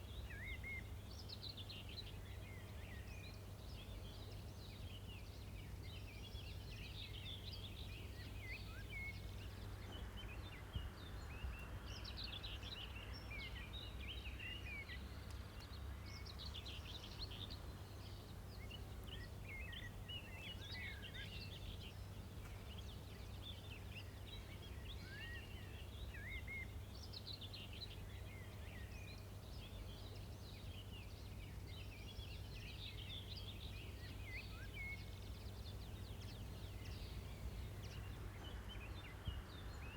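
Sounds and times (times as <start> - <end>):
birds chirping and singing: 16.1 - 39.9.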